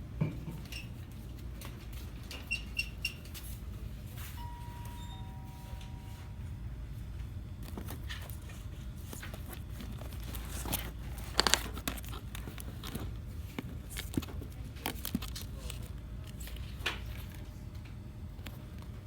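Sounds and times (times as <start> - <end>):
low hum of store interior: 0.0 - 19.0
packaging clicks and crinkles: 7.6 - 17.6.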